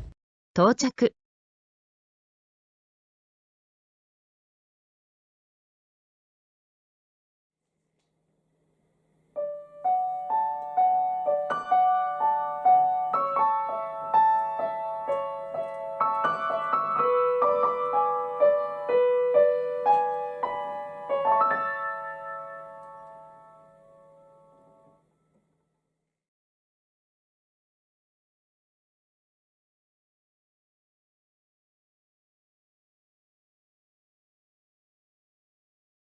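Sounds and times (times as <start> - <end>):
solo piano melody: 9.3 - 25.0.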